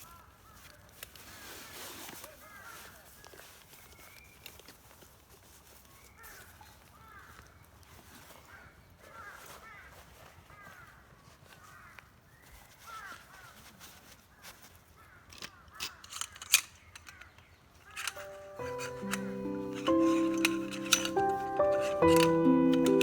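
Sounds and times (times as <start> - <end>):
sharp clicks and knocks: 15.4 - 23.0.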